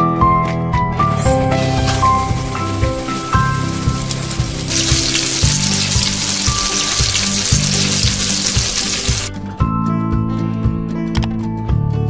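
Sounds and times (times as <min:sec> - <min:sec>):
background music with beat: 0:00.8 - 0:11.7
oil sizzling loudly: 0:01.1 - 0:09.3.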